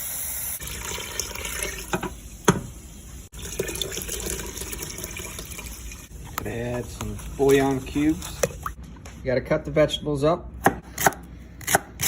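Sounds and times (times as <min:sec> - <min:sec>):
tap water filling a pot: 0:00.6 - 0:08.8.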